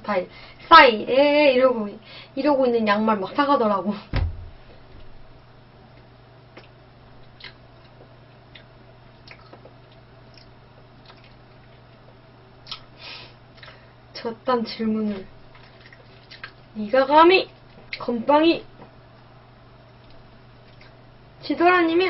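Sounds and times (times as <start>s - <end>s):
low electrical hum: 0.0s - 22.0s
quiet chewing: 5.8s - 13.9s, 15.1s - 16.7s, 19.8s - 21.0s
wet mouth clicks: 6.6s - 11.4s, 12.6s - 12.9s, 20.0s - 21.0s.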